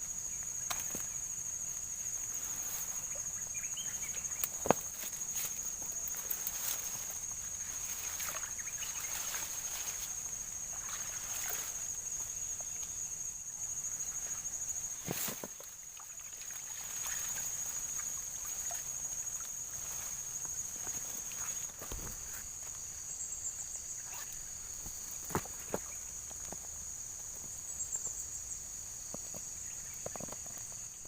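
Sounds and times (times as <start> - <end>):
insects droning: 0.0 - 31.0
water trickling and sloshing: 2.5 - 13.1, 14.0 - 22.7
small splashes and clicks: 4.3 - 6.9.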